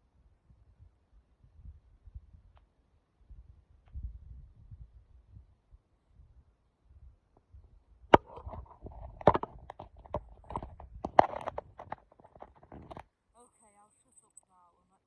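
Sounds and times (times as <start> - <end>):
sharp clicks and knocks: 8.2 - 13.0
close rustling: 8.2 - 14.4.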